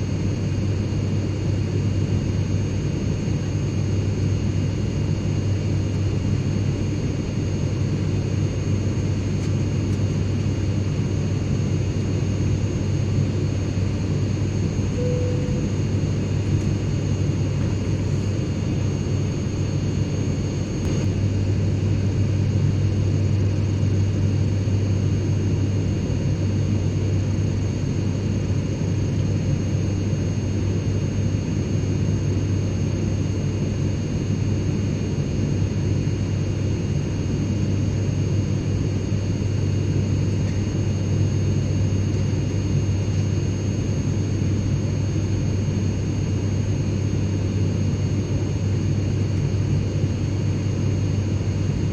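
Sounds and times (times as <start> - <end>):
airliner cabin engine drone: 0.0 - 51.9
faint high-pitched whines: 14.9 - 16.6.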